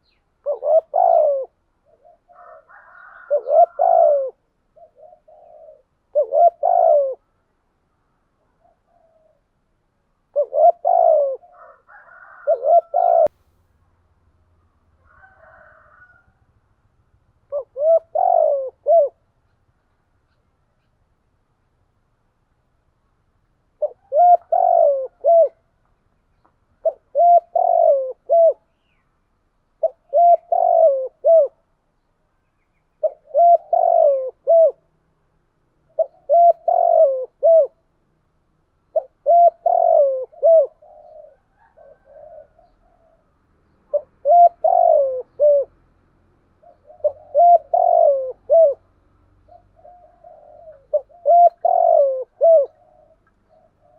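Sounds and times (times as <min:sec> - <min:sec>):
dove cooing: 0:00.0 - 0:07.4, 0:08.4 - 0:09.6, 0:10.2 - 0:13.4, 0:17.4 - 0:19.7, 0:23.7 - 0:25.8, 0:26.8 - 0:29.0, 0:29.7 - 0:31.8, 0:33.0 - 0:35.0, 0:35.8 - 0:37.9, 0:38.8 - 0:53.9.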